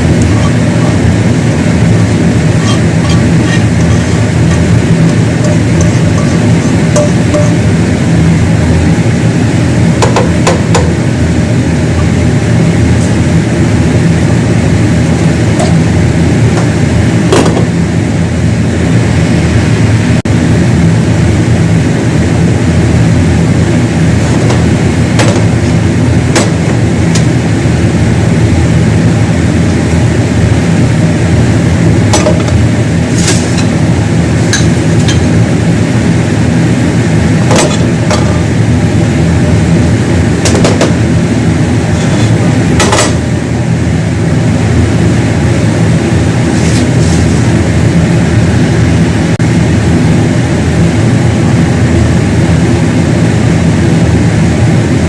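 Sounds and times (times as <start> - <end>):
loud machine hum: 0.0 - 55.0.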